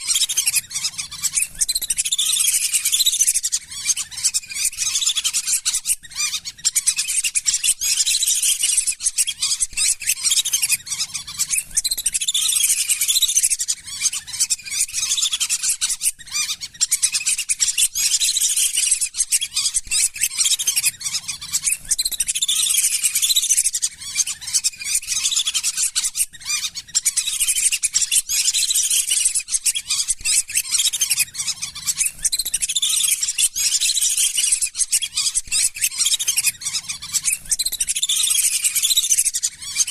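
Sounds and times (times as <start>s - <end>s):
ducks whistling and chattering: 0.0s - 39.9s.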